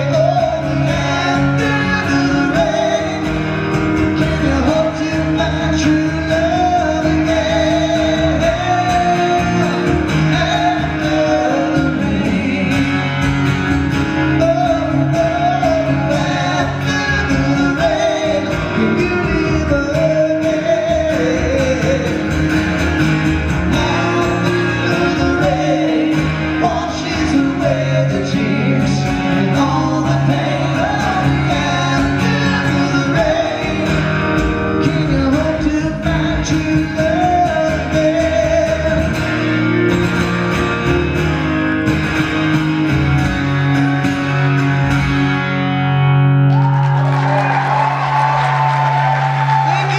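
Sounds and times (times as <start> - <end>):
person singing: 0.0 - 13.3, 14.2 - 22.5, 23.6 - 39.4
live rock band playing: 0.0 - 49.9.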